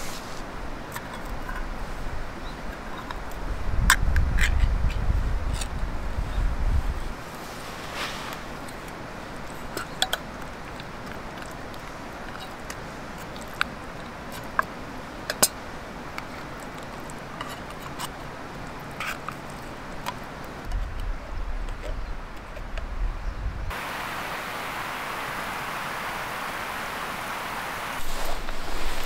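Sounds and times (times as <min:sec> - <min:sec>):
wood fire hissing: 0:00.0 - 0:00.5, 0:07.0 - 0:09.7, 0:23.7 - 0:29.0.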